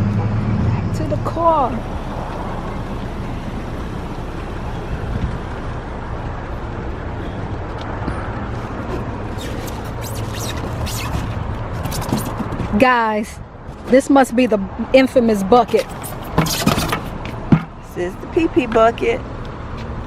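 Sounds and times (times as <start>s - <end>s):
car engine and road hum: 0.0s - 20.0s.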